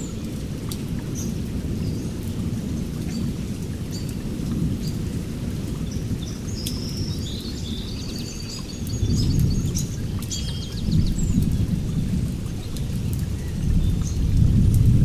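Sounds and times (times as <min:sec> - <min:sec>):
rain falling: 0:00.0 - 0:15.0
thunder rumbling: 0:10.8 - 0:15.0.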